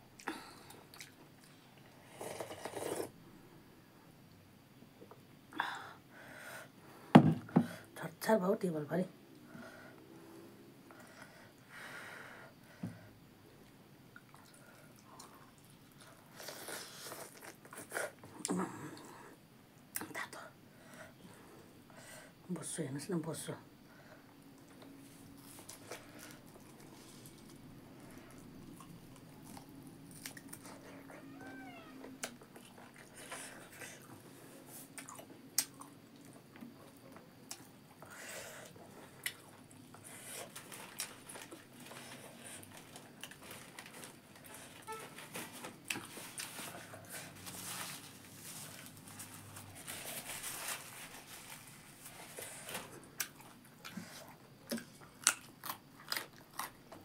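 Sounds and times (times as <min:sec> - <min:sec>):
chewing and mouth smacks: 0:00.2 - 0:01.6, 0:28.3 - 0:30.9.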